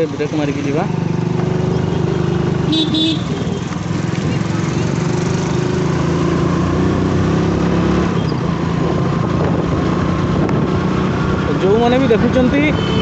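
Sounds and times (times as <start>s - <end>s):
motorcycle engine running: 0.0s - 13.0s
rushing wind noise: 5.2s - 13.0s.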